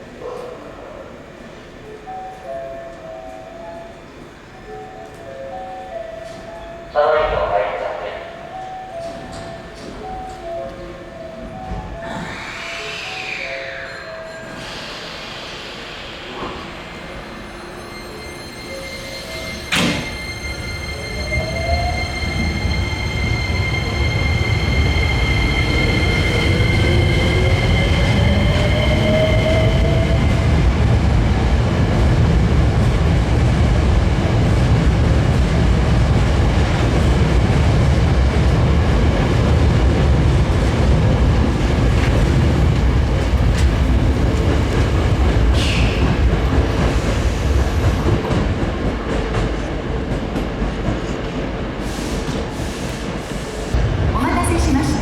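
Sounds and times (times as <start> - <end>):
train wheels clattering on rails: 19.3 - 20.6, 21.2 - 54.0.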